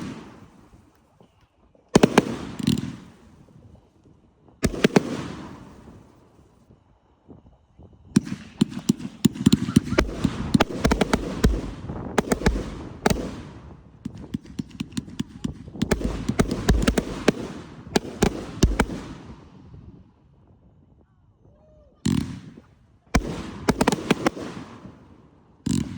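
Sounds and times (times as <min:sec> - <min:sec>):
fireworks crackling pops: 0:00.0 - 0:06.7, 0:08.2 - 0:19.4, 0:25.7 - 0:25.9
fireworks deep booms: 0:02.0 - 0:03.8, 0:04.5 - 0:06.2, 0:08.1 - 0:20.1, 0:22.0 - 0:25.9.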